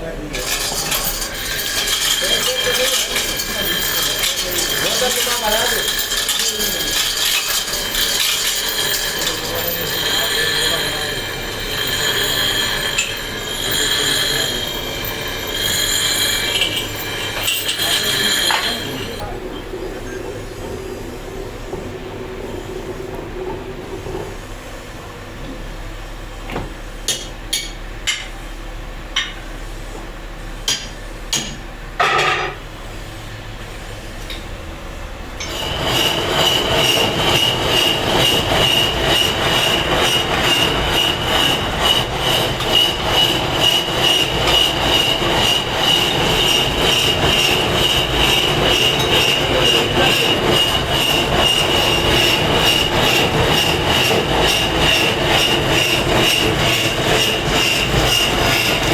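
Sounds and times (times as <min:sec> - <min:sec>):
power grinder on stone: 0:00.4 - 0:19.4, 0:35.4 - 0:58.9.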